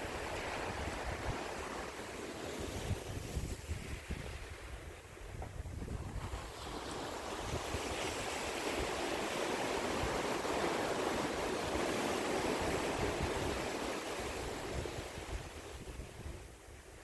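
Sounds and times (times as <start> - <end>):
ocean waves washing ashore: 0.0 - 17.0.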